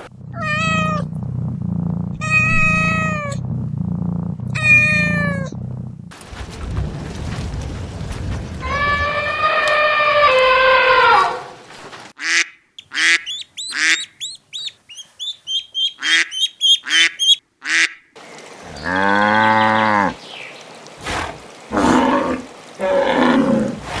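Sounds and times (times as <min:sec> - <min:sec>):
duck quacking: 0:12.2 - 0:18.1
deep drawn-out call: 0:12.3 - 0:17.9
ducklings peeping: 0:12.8 - 0:17.4.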